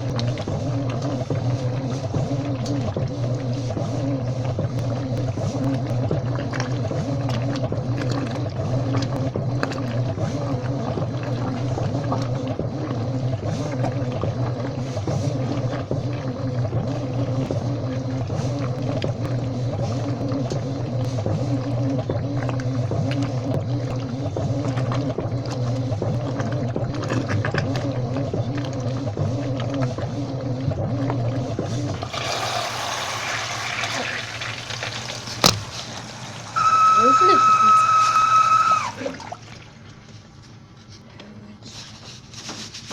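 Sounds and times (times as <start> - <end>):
washing machine motor hum: 0.0 - 42.9.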